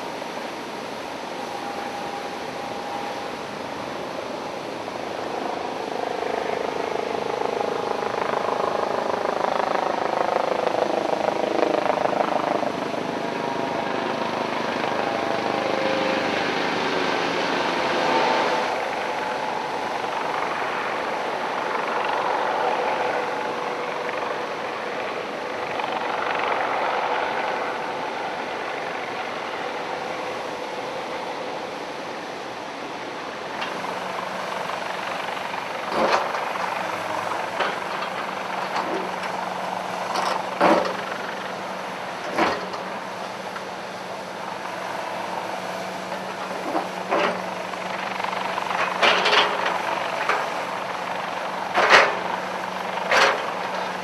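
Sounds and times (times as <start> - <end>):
engine and machinery noise: 0.0 - 54.0.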